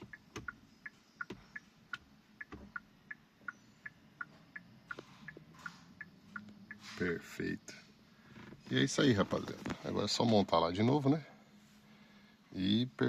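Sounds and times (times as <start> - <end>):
turn signal tick-tock clicks: 0.0 - 6.9.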